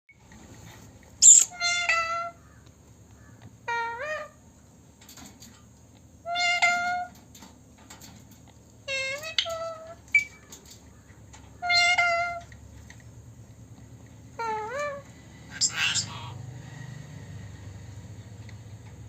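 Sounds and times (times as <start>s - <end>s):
parrot imitating cat meow: 1.2s - 2.4s, 3.6s - 4.4s, 6.2s - 7.1s, 11.6s - 12.5s, 14.4s - 15.0s, 15.6s - 16.2s.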